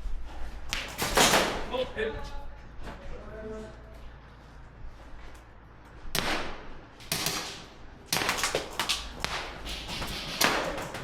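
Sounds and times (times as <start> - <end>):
airsoft gunshots: 0.8 - 1.7, 6.2 - 11.0.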